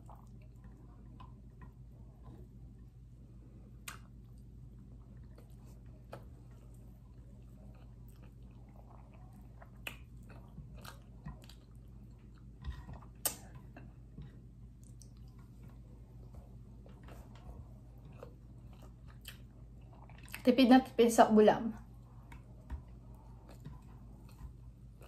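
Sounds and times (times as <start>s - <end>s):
steady low hum: 0.0s - 25.0s
small clicks and smacks: 3.8s - 4.5s, 9.6s - 20.5s, 22.2s - 25.0s
person chewing: 3.8s - 20.4s, 22.0s - 25.0s.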